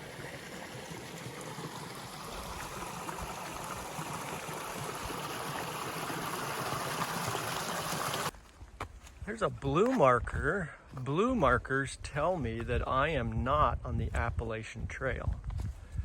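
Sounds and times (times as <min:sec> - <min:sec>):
creek running over rocks: 0:00.0 - 0:08.4.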